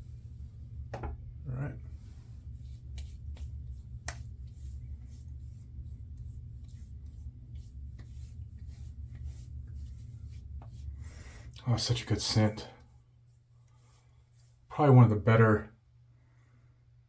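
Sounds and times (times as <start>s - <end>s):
steady low hum: 0.0s - 17.0s
hands rubbing and tapping skin: 2.4s - 10.9s.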